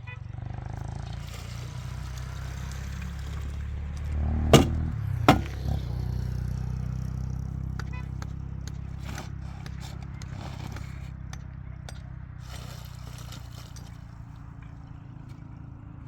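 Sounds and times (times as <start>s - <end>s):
sharp knocks: 4.5s - 5.7s.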